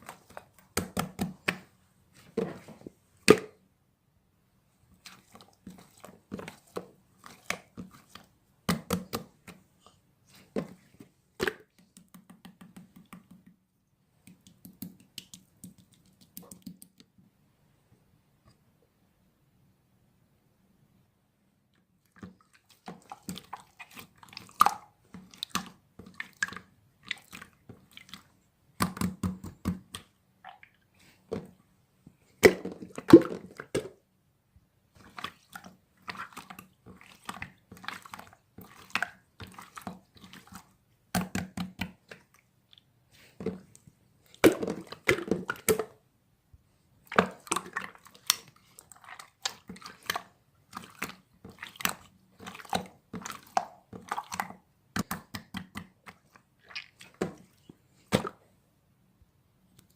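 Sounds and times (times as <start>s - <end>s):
slime squishing by hand: 4.9s - 13.5s, 22.1s - 34.0s, 34.9s - 46.0s, 46.9s - 58.5s.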